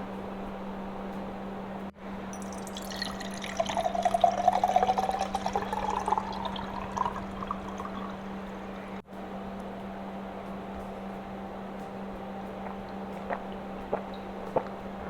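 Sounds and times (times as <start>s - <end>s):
juice pouring into a glass: 2.3s - 8.9s.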